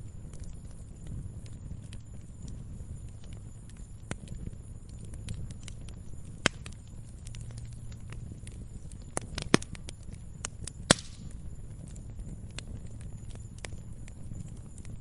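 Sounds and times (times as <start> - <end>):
log fire popping: 0.0 - 15.0
low rumble of flames: 0.0 - 15.0.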